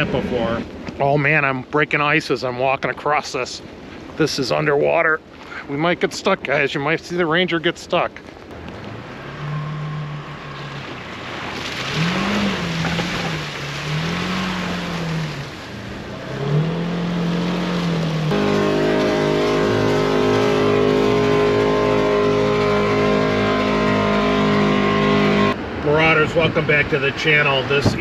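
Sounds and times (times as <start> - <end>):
utility vehicle engine revving: 8.5 - 25.6
drone of held tones: 9.0 - 10.8, 18.3 - 25.6
spray through water and slush: 10.6 - 24.0.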